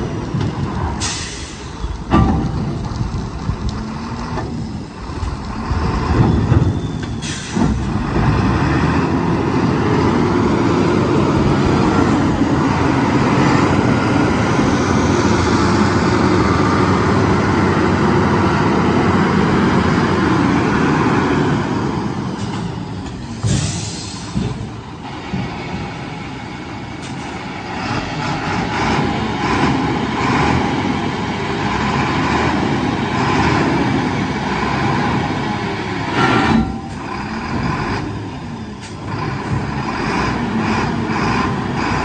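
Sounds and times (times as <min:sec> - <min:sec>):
diesel truck engine running: 0:00.0 - 0:42.0
air brake hiss: 0:01.0 - 0:01.8, 0:07.2 - 0:07.8, 0:23.3 - 0:24.4.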